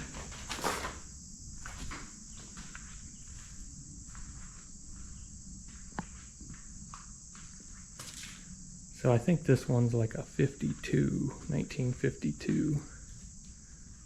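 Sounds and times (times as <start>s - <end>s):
soft footsteps: 0.0s - 8.9s
crickets chirping: 0.0s - 14.0s.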